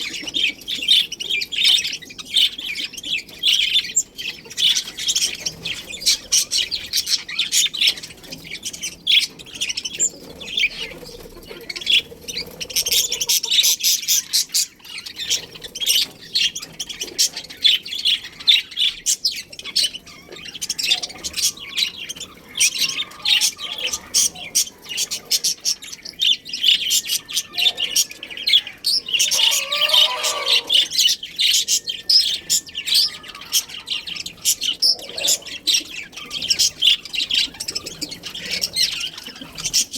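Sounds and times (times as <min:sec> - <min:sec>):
budgerigars chattering: 0:00.0 - 0:39.9
harsh low bird call: 0:29.2 - 0:30.9.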